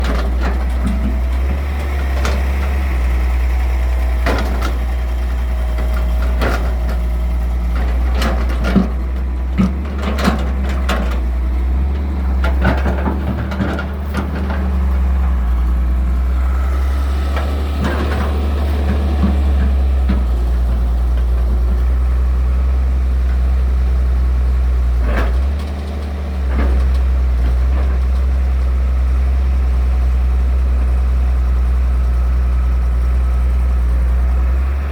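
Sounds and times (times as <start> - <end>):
excavator diesel engine running: 0.0 - 34.9
machine knocks and clanks: 4.1 - 7.0.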